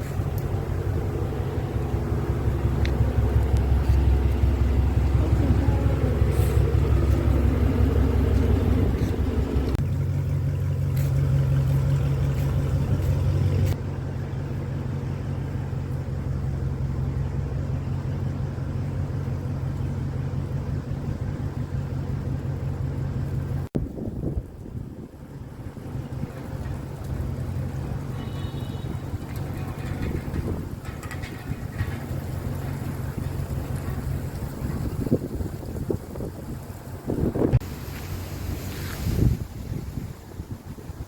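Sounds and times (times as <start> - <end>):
car rumble from inside: 0.0 - 41.0.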